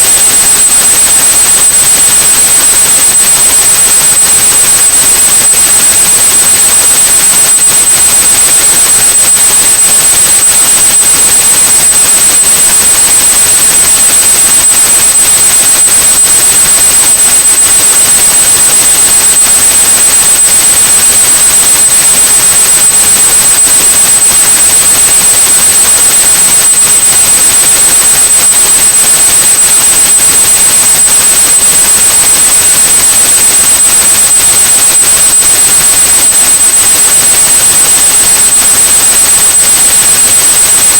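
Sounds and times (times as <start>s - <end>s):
high-pitched steady tone: 0.0s - 29.2s.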